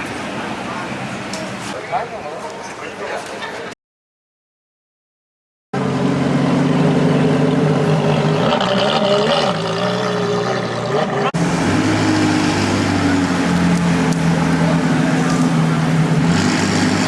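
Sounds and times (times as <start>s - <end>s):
car engine running: 5.8s - 17.0s.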